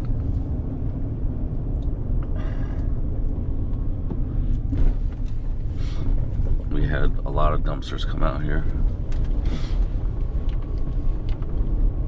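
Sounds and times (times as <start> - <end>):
road noise: 0.0 - 12.0
truck engine rumble: 0.0 - 12.0.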